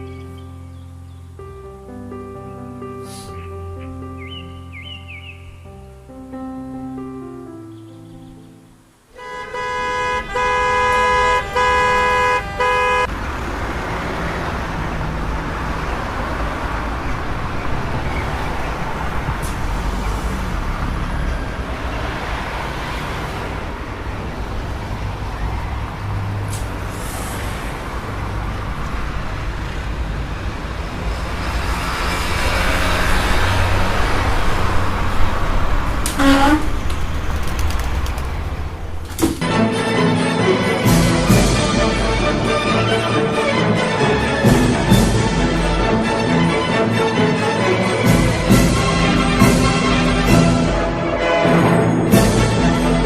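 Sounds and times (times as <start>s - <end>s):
road traffic passing: 0.0s - 53.0s
car horn blaring: 9.1s - 13.2s, 36.0s - 36.9s.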